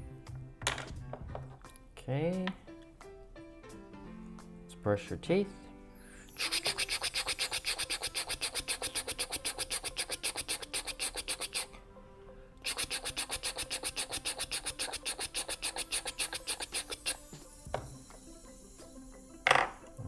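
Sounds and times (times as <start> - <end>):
toothbrush scrubbing toy teeth: 6.3 - 11.8, 12.6 - 17.5.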